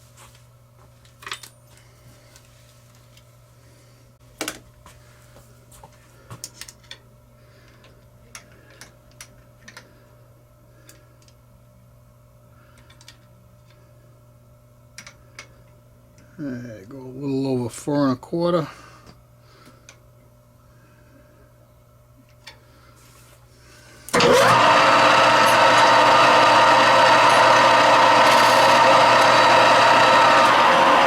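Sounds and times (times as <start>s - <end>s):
metal lathe humming: 24.1s - 31.0s.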